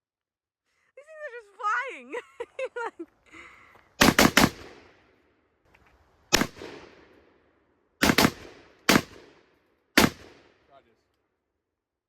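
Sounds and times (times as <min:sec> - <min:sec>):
gunshots with echo: 0:04.0 - 0:05.0, 0:06.3 - 0:07.2, 0:08.0 - 0:10.7.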